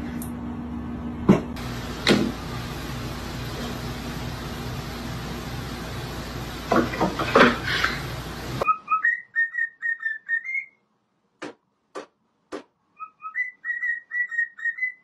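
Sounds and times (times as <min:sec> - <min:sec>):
whistled tune: 0:08.6 - 0:10.8, 0:13.0 - 0:15.0.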